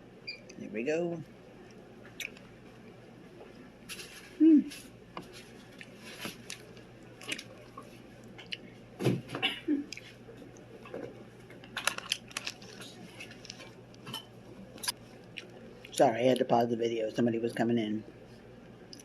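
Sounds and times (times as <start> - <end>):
packaging clicks and crunches: 11.6 - 13.7.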